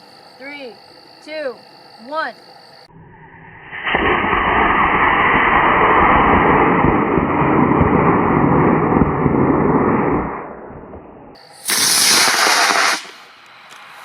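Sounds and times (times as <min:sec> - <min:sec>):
rocket motor rushing: 0:11.6 - 0:13.2.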